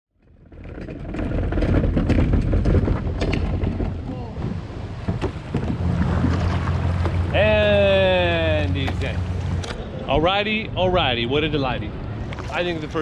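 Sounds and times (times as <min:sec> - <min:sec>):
wind buffeting microphone: 0:00.4 - 0:13.0
moving water: 0:03.4 - 0:13.0.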